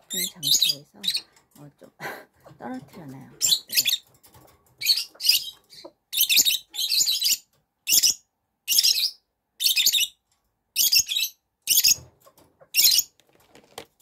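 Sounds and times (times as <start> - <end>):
chicks calling: 3.4 - 4.1, 4.8 - 10.1.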